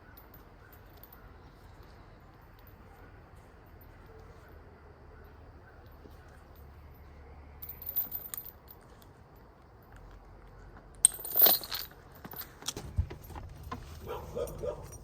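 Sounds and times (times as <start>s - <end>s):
metallic jangling and clinking: 7.6s - 9.0s, 11.0s - 15.0s.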